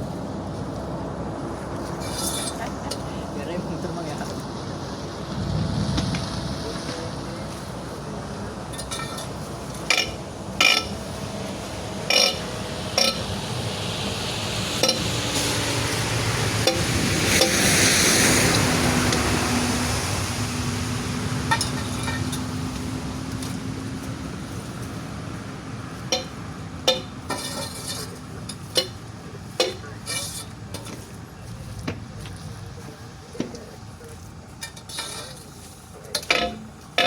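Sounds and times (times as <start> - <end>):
steady engine hum: 0.0 - 37.0
vehicle passing: 0.0 - 37.0
metal tools clinking: 1.9 - 3.1, 8.7 - 11.0, 12.1 - 13.3, 21.5 - 22.6, 26.0 - 29.0, 29.6 - 31.2, 34.6 - 37.0.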